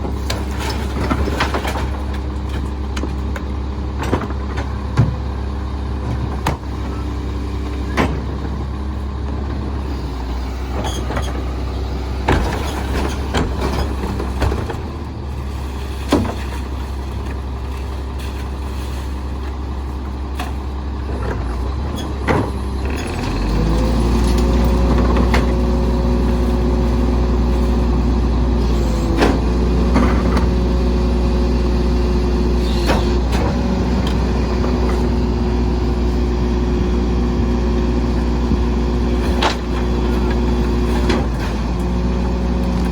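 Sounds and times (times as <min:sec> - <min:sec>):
garbage truck diesel engine: 0:00.0 - 0:42.9
knocks and clanks: 0:12.2 - 0:14.9.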